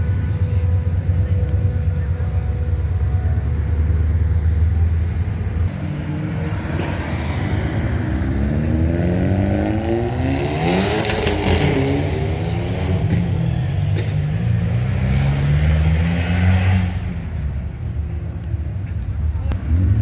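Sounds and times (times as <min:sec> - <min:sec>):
deep engine rumble: 0:00.0 - 0:15.5
car engine revving past: 0:06.0 - 0:17.2.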